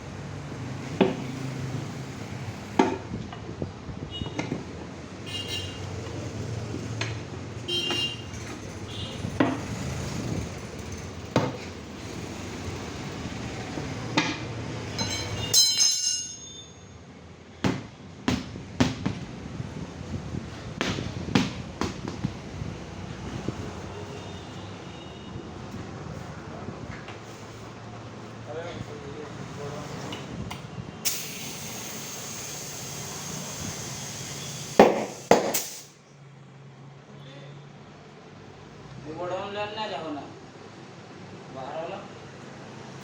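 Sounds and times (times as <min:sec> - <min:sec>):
hand tools knocking on metal: 0:14.2 - 0:16.6
ringing hissing scrape: 0:15.0 - 0:16.9.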